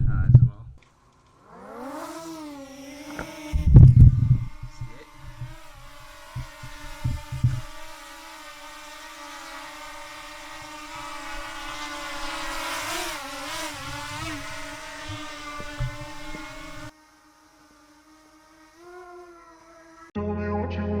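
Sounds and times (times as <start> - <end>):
drone propellers whining: 0.8 - 20.2
low thumps: 3.0 - 8.0, 9.6 - 16.9.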